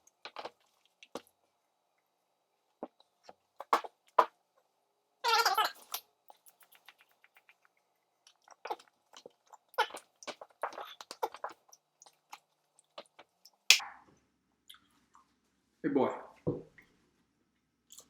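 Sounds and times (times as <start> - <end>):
chewing and mouth smacking: 5.8 - 13.6.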